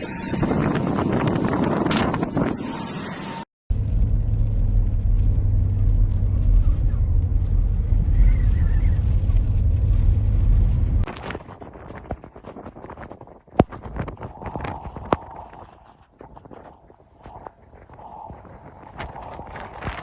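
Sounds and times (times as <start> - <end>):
car rumbling: 0.0 - 12.1.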